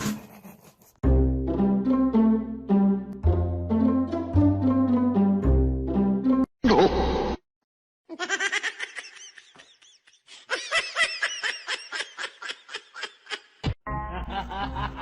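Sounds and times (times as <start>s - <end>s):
person laughing: 0.0s - 1.0s, 8.1s - 15.0s.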